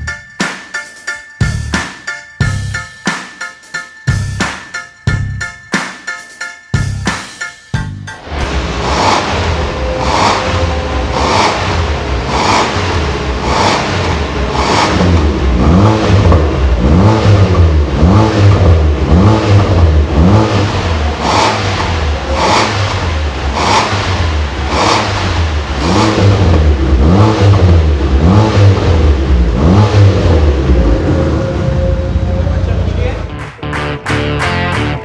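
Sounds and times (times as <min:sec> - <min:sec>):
car engine revving: 0:08.2 - 0:34.7.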